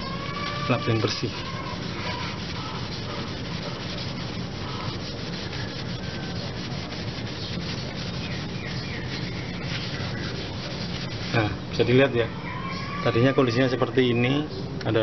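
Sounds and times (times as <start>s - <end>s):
cloth rubbing metal pipe: 0.0s - 11.8s.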